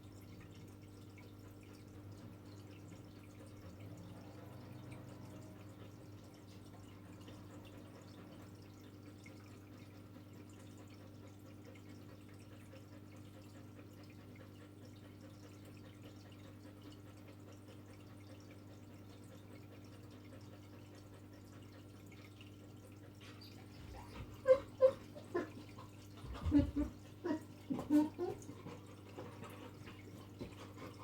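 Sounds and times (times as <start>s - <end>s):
dog whimpering: 23.4s - 28.5s.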